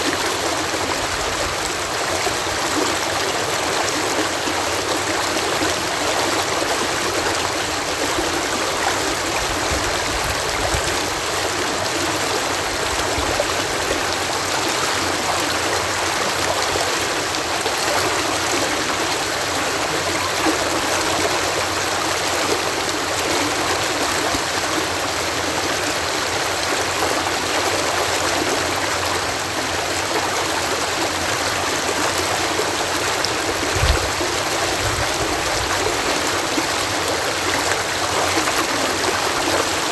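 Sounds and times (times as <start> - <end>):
water rushing through canal lock: 0.0 - 39.9
low thump: 33.7 - 35.0.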